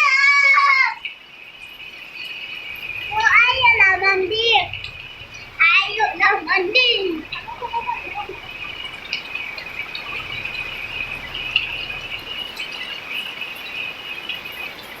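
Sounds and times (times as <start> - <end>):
rain falling: 0.0 - 15.0
high insect trilling: 1.6 - 14.8.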